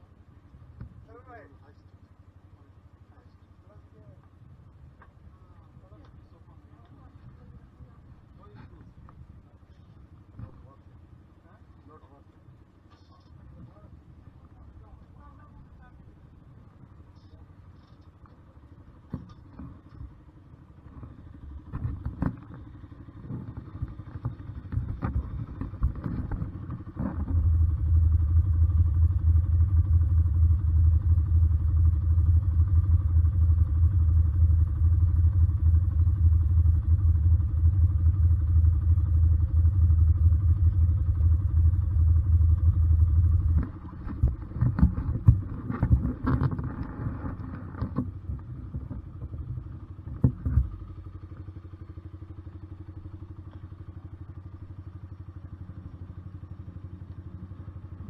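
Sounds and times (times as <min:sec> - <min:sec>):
motorcycle engine rumble: 0:00.0 - 0:58.0
knocks and clatter: 0:20.9 - 0:27.6, 0:43.2 - 0:50.9.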